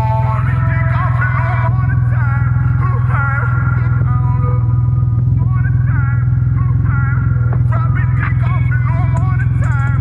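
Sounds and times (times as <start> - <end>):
music with singing voice: 0.0 - 10.0
three-wheeler engine running: 0.0 - 10.0.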